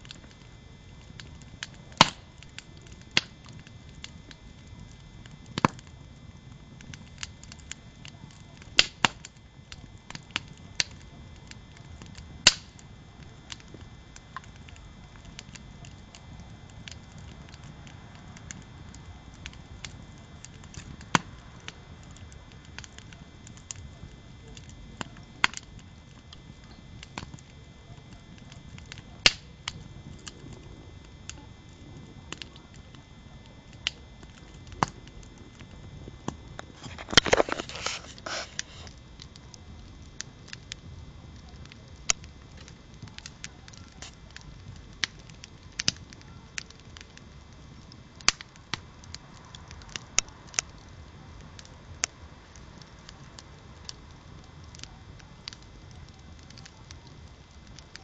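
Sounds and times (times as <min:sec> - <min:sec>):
wood campfire crackling: 0:00.0 - 0:58.0.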